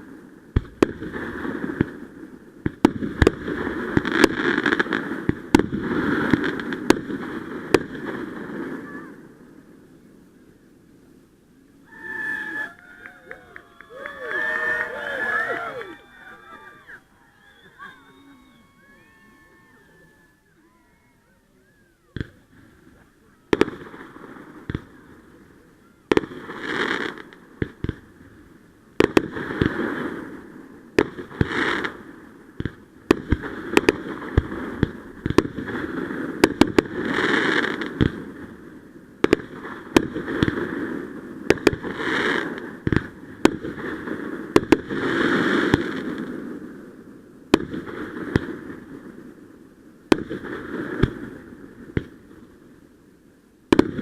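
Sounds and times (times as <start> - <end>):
firework bangs: 0.0 - 9.8, 22.1 - 52.6, 53.7 - 54.0
fireworks crackling: 0.0 - 54.0.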